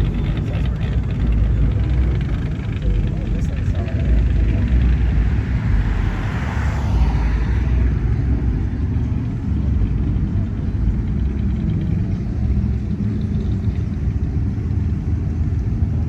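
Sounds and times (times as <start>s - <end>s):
car engines and exhausts rumbling: 0.0s - 16.0s
car passing close: 3.5s - 10.0s.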